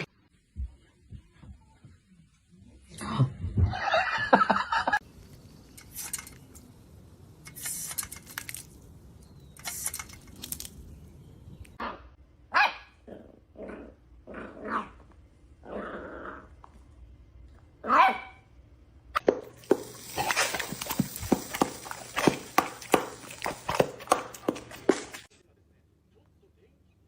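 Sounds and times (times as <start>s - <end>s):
dog barking: 11.8s - 13.0s, 17.8s - 18.4s.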